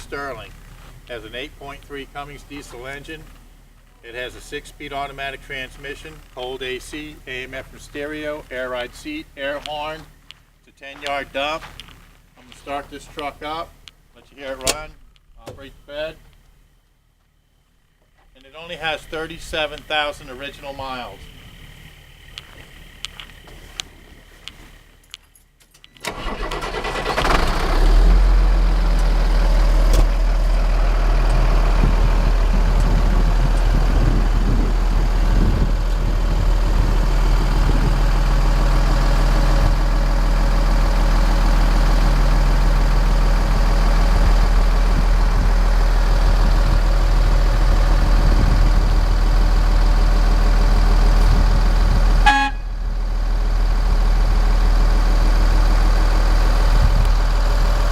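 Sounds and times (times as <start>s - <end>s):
diesel engine cranking: 0.0s - 10.3s, 25.8s - 57.9s
diesel engine idling: 17.8s - 25.0s, 26.1s - 57.9s.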